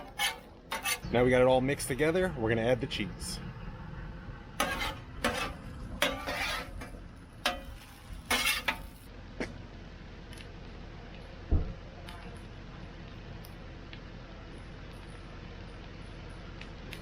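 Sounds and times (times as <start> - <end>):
metal spatula scraping griddle: 0.0 - 1.2, 4.6 - 9.1.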